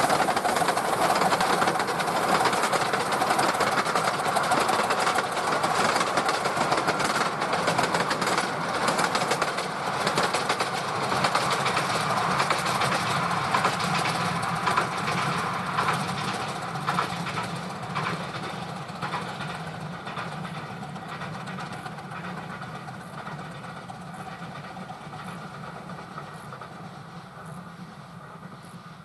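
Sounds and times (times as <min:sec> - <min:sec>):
miniature steam train running: 0:00.0 - 0:29.0.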